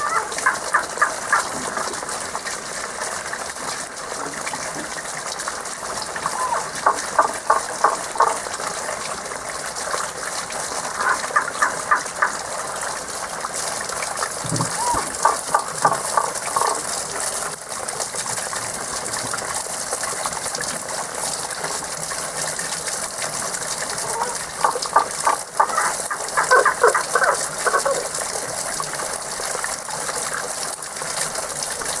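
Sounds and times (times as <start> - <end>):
frogs calling: 0.0 - 1.6, 6.2 - 8.6, 10.9 - 12.5, 14.5 - 16.9, 24.0 - 28.2
spring water gushing: 0.0 - 32.0.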